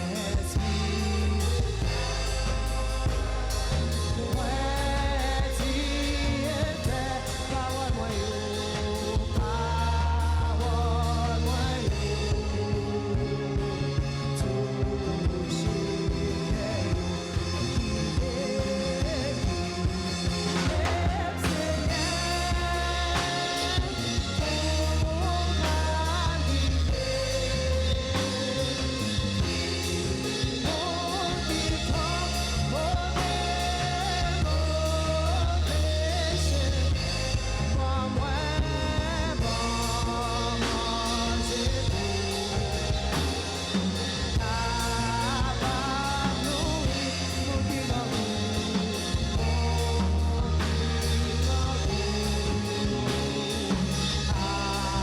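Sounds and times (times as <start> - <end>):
bass line: 0.0 - 55.0
drum kit: 0.0 - 55.0
people singing: 0.0 - 55.0.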